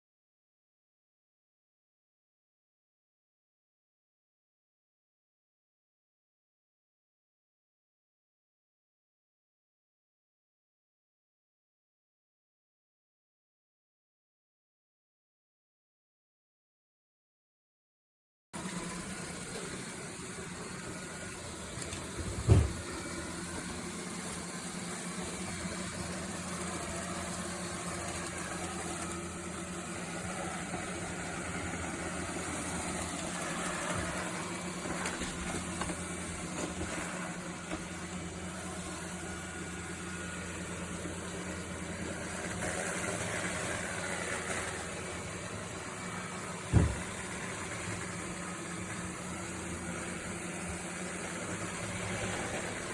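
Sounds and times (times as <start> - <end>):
robot vacuum motor hum: 18.6 - 52.9.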